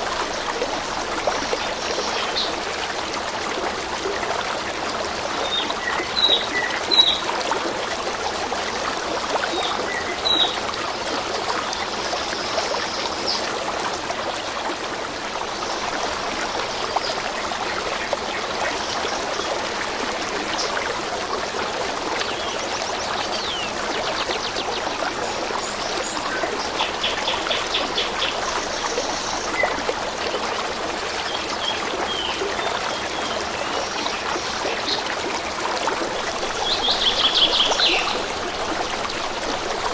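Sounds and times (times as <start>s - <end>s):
stream trickling: 0.0s - 39.9s
birds chirping: 36.2s - 38.9s.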